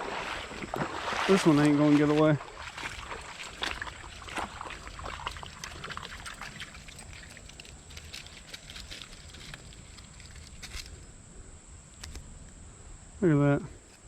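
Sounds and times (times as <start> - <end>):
water splashing and trickling: 0.0 - 10.8.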